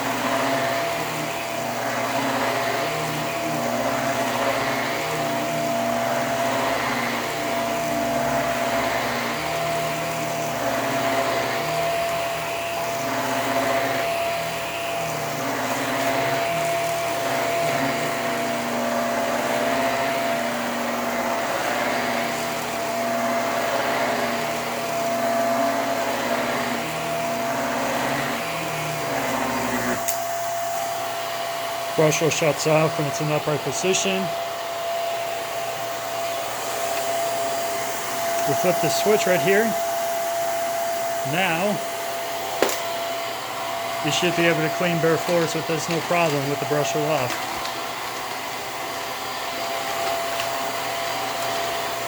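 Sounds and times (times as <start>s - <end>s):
vacuum cleaner motor whine: 0.0s - 52.0s.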